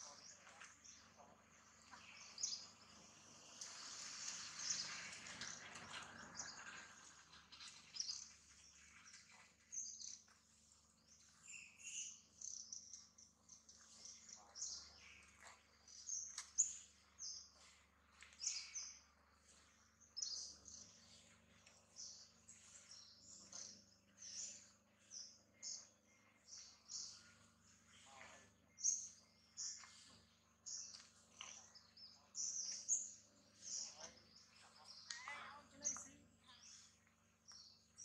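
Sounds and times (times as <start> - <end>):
birds chirping: 0.0 - 38.0
hiss-like noise: 2.3 - 6.8.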